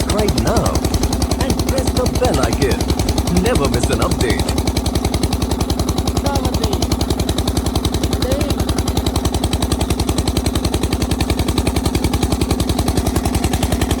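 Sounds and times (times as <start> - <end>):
single-cylinder engine running: 0.0 - 14.0.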